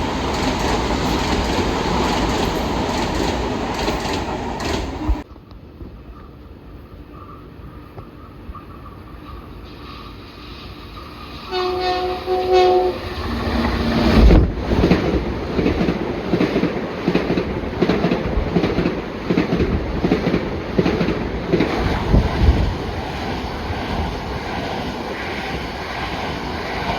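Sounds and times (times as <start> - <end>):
wheel clacks over rail joints: 0.0 - 5.3
train passing with rumble: 0.0 - 26.9
train horn blasts: 11.5 - 14.2.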